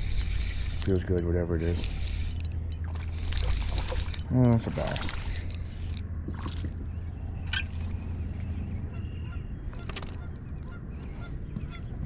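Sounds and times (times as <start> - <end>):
steady low rumble: 0.0 - 12.0
geese honking faintly: 8.8 - 12.0.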